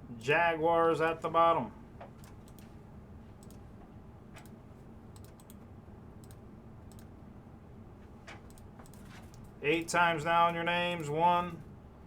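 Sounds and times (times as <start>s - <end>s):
low room hum: 0.0s - 12.0s
keyboard and mouse clicks: 2.0s - 2.7s, 3.4s - 3.6s, 5.2s - 5.6s, 6.2s - 7.1s, 8.3s - 9.6s.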